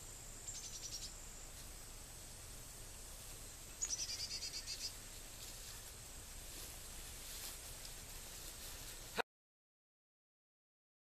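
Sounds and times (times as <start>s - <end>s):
high insect drone: 0.0s - 9.2s
rapid high bird chirps: 0.4s - 1.4s, 3.7s - 5.0s.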